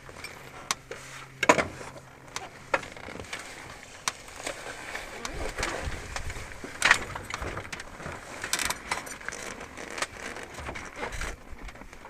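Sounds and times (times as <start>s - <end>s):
handling knocks and rattles: 0.0s - 12.0s
gusty wind on microphone: 5.1s - 8.4s.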